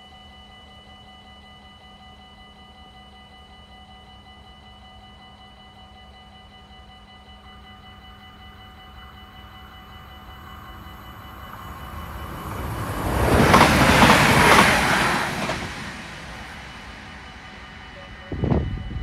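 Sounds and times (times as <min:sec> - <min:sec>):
crossing warning bell ringing: 0:04.1 - 0:19.0
train passing: 0:08.4 - 0:19.0.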